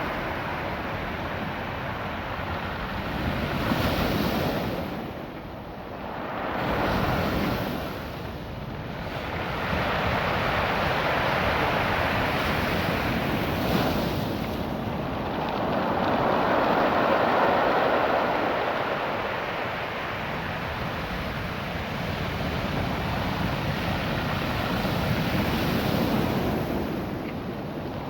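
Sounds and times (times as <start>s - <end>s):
surf washing over pebbles: 6.0s - 28.0s.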